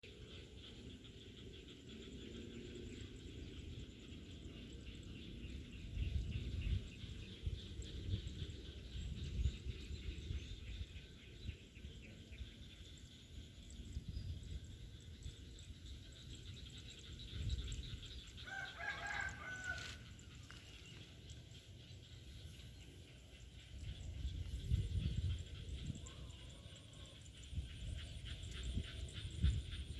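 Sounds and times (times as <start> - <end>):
rooster crowing: 18.4 - 20.1.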